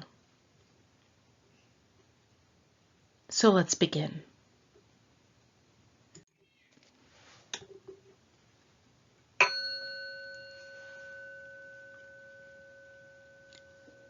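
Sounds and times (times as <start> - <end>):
meditation bell ringing: 9.4 - 14.0.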